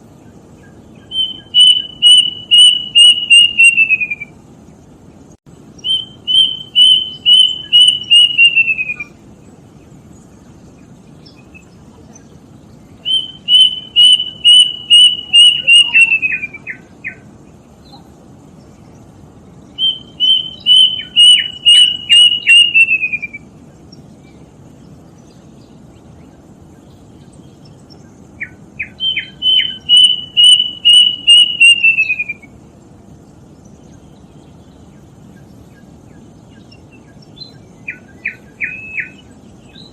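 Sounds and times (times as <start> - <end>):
steady low hiss: 0.0 - 39.9
cuckoo whistling: 1.0 - 4.3, 5.8 - 9.1, 13.0 - 17.2, 19.8 - 23.4, 28.8 - 32.5, 37.9 - 39.2.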